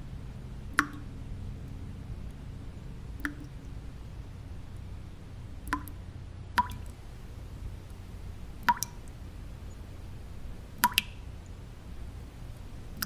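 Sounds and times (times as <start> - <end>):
low white-noise hum: 0.0 - 13.0
water drops plinking: 5.6 - 6.0, 6.6 - 13.0.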